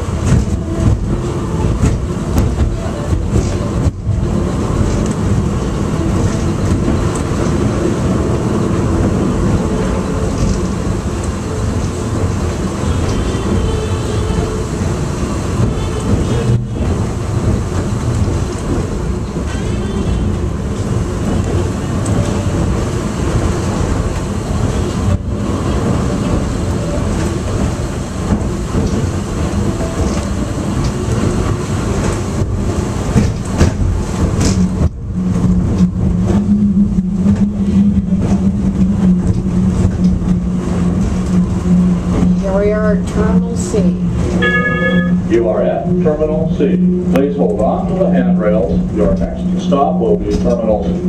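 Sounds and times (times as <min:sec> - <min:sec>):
train car rumbling on track: 0:00.0 - 0:51.0
low hum: 0:33.8 - 0:51.0.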